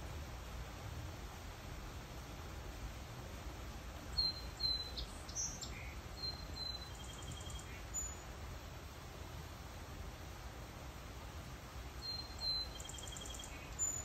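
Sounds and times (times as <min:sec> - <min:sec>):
small birds chirping: 0:04.1 - 0:08.3, 0:12.0 - 0:14.0.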